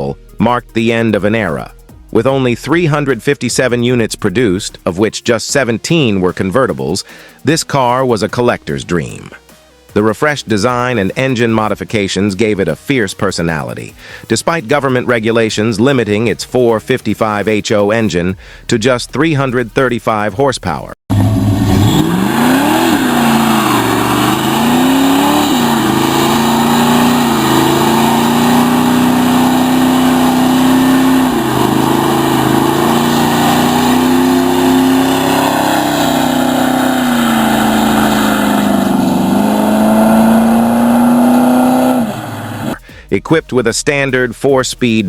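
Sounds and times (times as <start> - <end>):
car engine revving: 21.1 - 42.9.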